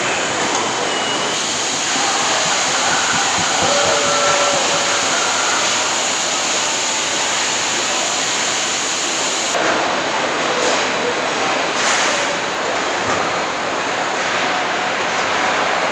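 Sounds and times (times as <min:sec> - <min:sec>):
machinery and air hiss: 0:00.0 - 0:09.6.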